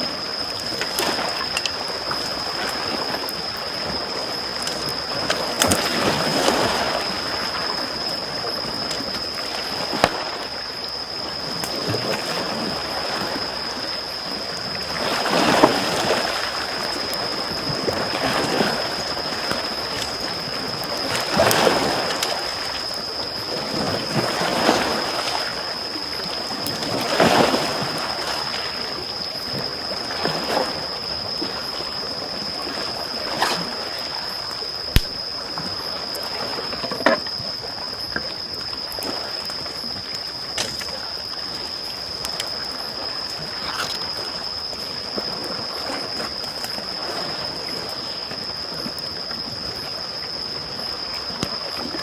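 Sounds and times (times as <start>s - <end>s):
small waves lapping on shore: 0.0s - 52.0s
campfire crackling: 34.9s - 35.4s.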